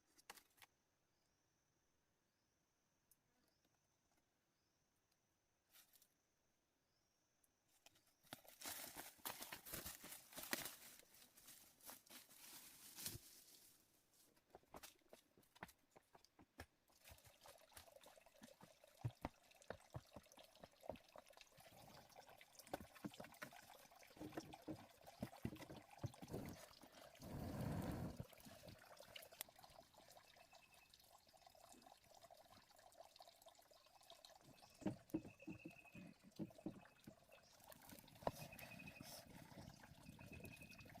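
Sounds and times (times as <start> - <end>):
water pouring: 16.9 - 35.3, 35.9 - 41.0.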